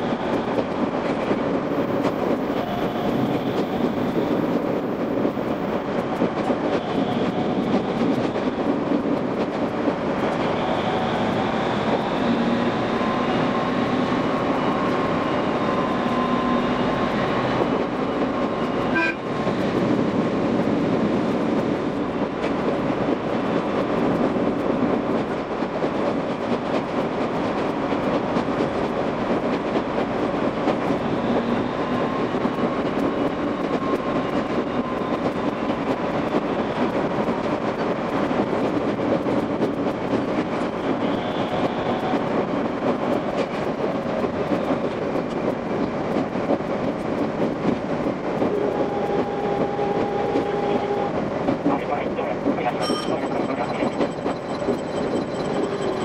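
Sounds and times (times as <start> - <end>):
train wheels rumbling on track: 0.0 - 56.0
faint whine: 52.6 - 56.0.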